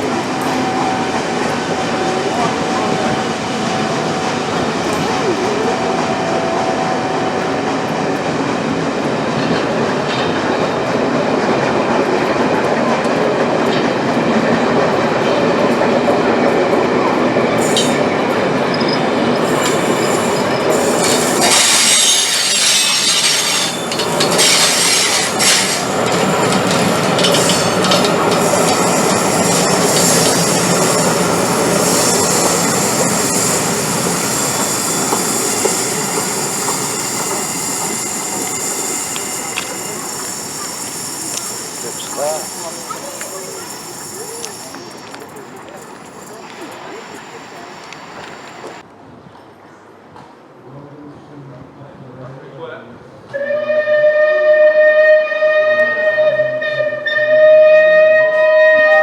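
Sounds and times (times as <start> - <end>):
train wheels rumbling and clattering: 0.0 - 48.8
high-pitched wheel squeal: 18.7 - 48.8.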